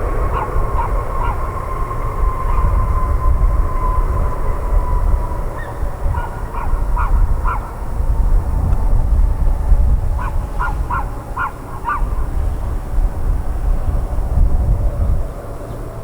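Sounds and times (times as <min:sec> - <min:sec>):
crow cawing: 0:10.2 - 0:12.4.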